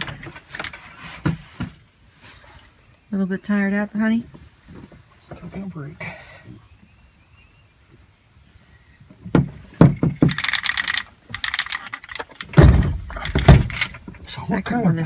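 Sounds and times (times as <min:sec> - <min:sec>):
sharp knocks: 0:09.3 - 0:10.5, 0:12.5 - 0:14.2
heavy deep thuds: 0:12.6 - 0:14.3.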